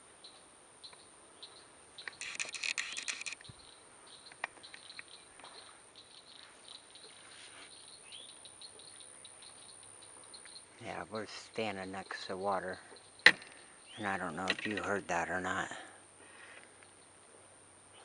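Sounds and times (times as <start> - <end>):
harsh rattle of clicks: 2.0 - 3.5, 14.4 - 15.0.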